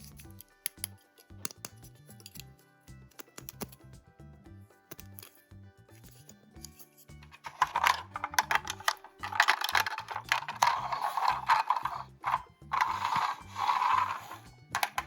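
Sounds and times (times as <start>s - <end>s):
plastic toy parts clicking: 0.0s - 2.5s, 3.1s - 3.8s, 6.1s - 15.0s
plastic scraping: 7.2s - 15.0s.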